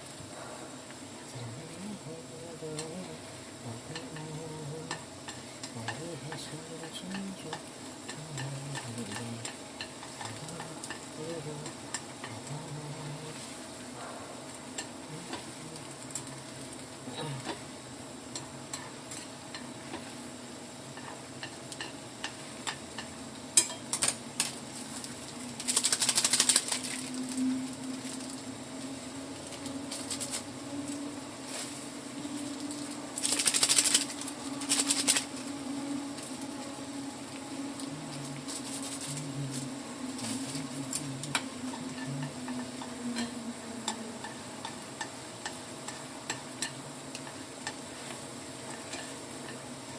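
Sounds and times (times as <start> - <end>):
chopsticks stirring sticky noodles: 2.7 - 17.6, 24.6 - 49.7
chopsticks clicking against container: 21.0 - 28.4, 32.4 - 35.4
rapid clattering: 32.4 - 35.4.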